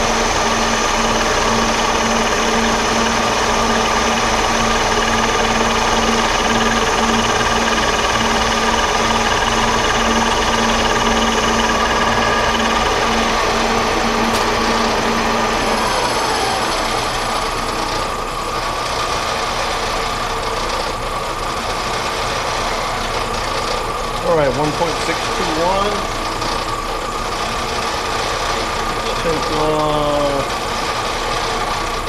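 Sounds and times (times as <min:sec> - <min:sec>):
falling whine of drive: 0:00.0 - 0:32.0
metal lathe humming: 0:00.0 - 0:32.0.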